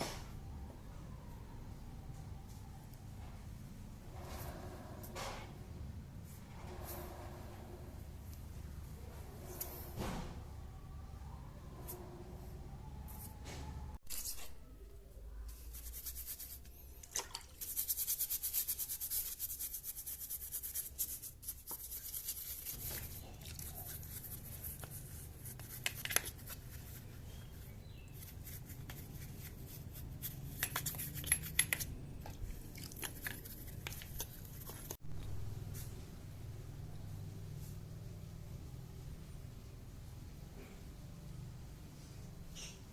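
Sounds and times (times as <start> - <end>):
brushing small brake parts: 17.6 - 35.0.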